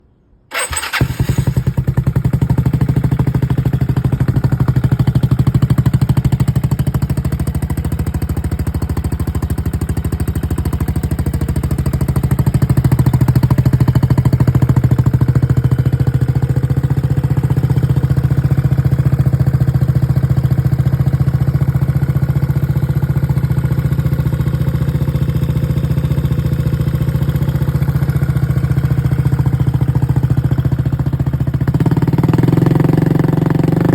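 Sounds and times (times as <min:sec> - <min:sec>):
scooter engine idling: 0:00.5 - 0:33.9.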